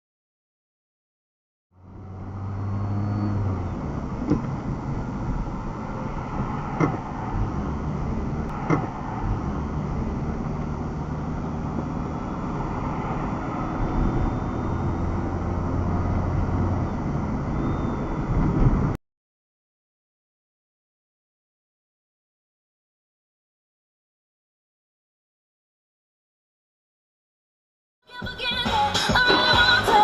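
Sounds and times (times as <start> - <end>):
car engine and road noise: 1.7 - 19.0, 28.2 - 30.0.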